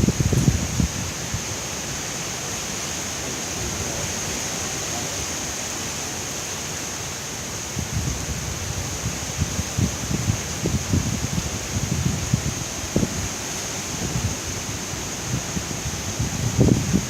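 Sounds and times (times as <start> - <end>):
strong wind rushing: 0.0 - 2.0, 7.6 - 17.0.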